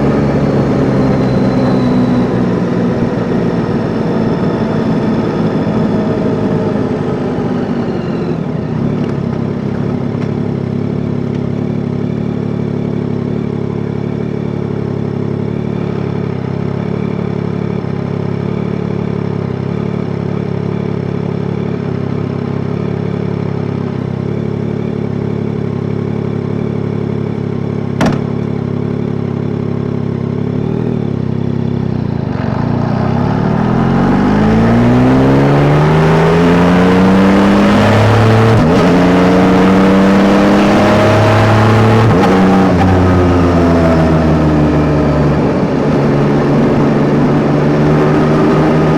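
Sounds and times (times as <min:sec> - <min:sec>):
motorcycle engine idling: 0:08.4 - 0:33.0
sharp click: 0:28.0 - 0:28.5.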